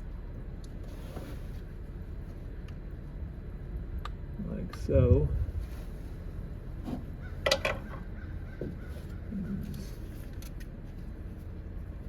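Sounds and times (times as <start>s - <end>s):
low background hum: 0.0s - 12.0s
crow cawing: 7.2s - 9.4s.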